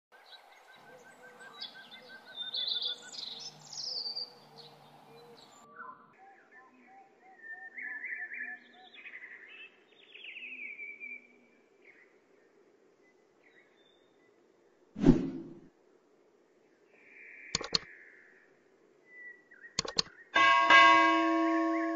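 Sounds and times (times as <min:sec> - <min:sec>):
birds chirping with falling trill: 0:00.2 - 0:11.2, 0:19.2 - 0:21.9
repeated short bird calls: 0:16.7 - 0:20.5.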